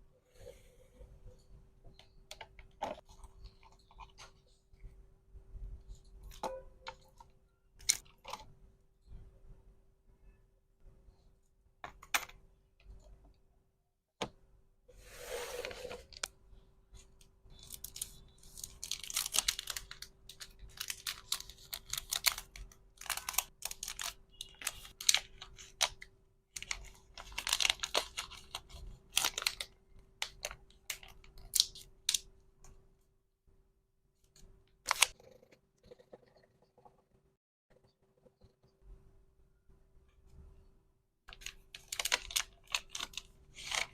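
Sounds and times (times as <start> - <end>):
packaging crinkling and tearing: 17.5 - 32.2, 41.3 - 43.9.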